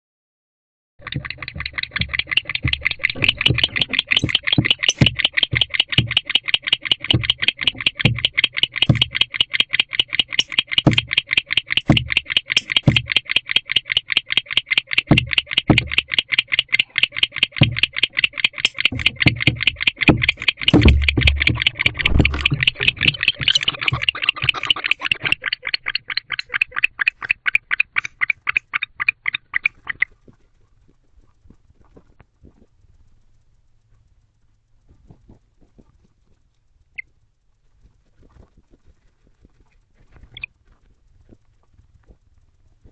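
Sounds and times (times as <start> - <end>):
soft low knocks: 18.8 - 25.3.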